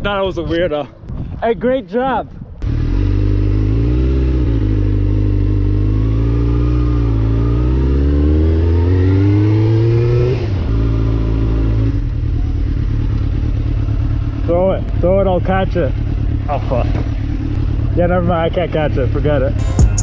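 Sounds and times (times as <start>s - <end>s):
motorcycle engine revving: 2.6s - 20.0s.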